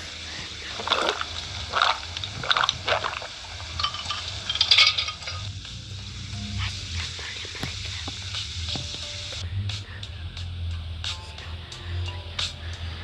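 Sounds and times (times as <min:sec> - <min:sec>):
wet chewing and slurping: 0:00.0 - 0:05.1.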